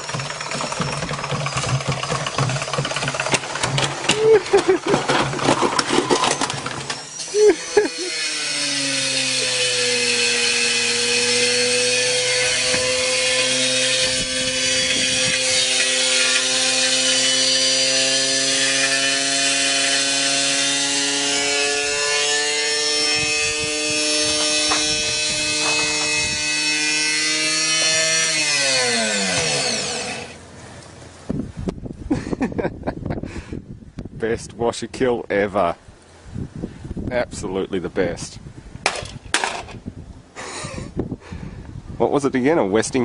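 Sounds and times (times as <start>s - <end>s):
rough grinding rub: 0.0s - 30.4s
washing machine motor whining: 0.0s - 30.4s.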